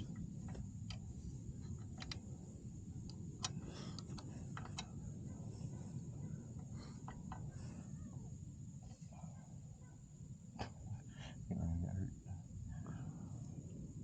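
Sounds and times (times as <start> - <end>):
wrench clicking: 0.0 - 2.2.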